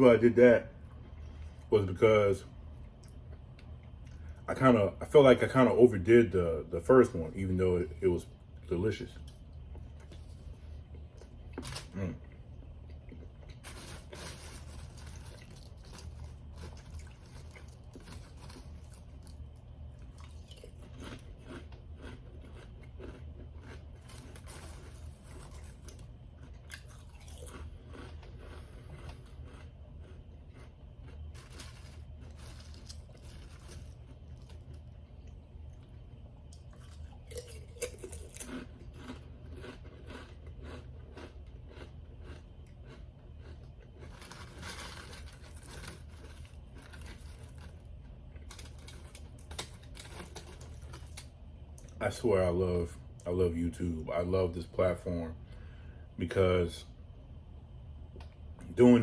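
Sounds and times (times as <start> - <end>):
steady low hum: 0.0 - 59.0
person chewing crunchy food: 9.2 - 52.0.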